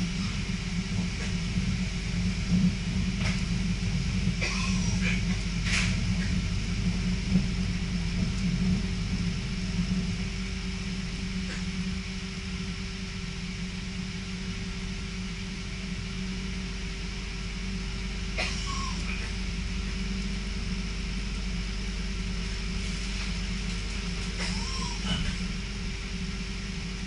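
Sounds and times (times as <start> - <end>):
constant low hum: 0.0 - 27.0
train running rumble: 0.0 - 27.0.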